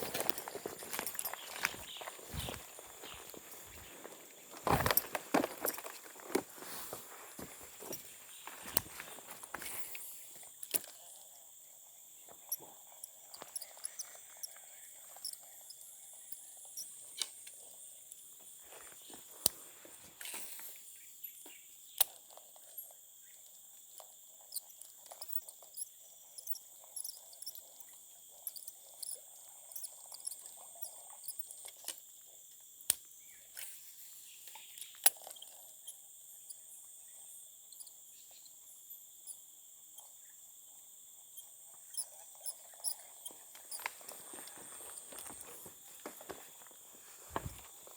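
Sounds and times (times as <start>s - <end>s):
high-pitched insect chorus: 0.0s - 22.0s, 33.1s - 47.9s.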